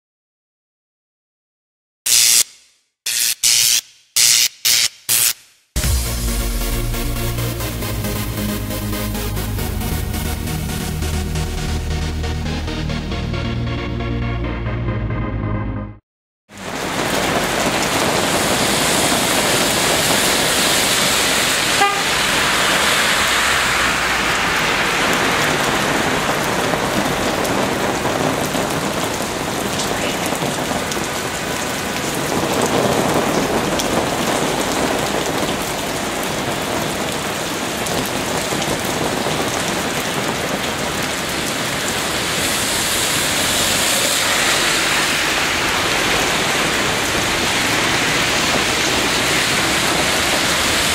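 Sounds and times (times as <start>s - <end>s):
rain pouring down: 5.8s - 12.9s, 16.5s - 50.9s
vehicles passing through water: 16.6s - 50.9s.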